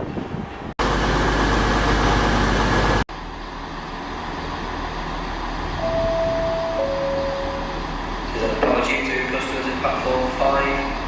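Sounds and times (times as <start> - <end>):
vehicle engine humming: 0.8 - 11.0
station background noise: 5.7 - 11.0
public-address chime: 5.8 - 7.9.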